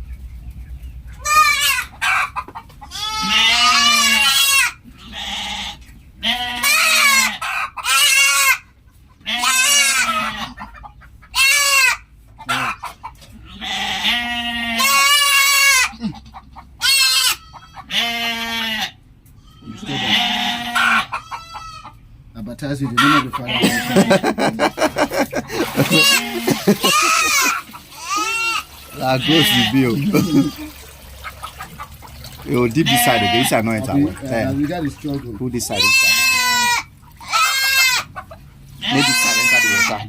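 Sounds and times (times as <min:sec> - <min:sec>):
goats bleating: 0:01.2 - 0:01.9, 0:02.9 - 0:08.6, 0:09.2 - 0:12.8, 0:13.4 - 0:22.0, 0:22.9 - 0:30.9, 0:32.4 - 0:40.0.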